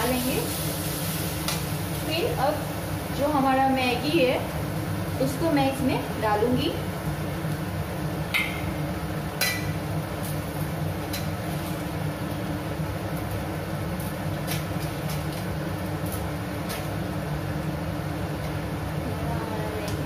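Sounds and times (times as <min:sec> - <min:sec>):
sharp frying pops: 0:00.0 - 0:03.2, 0:07.4 - 0:17.2.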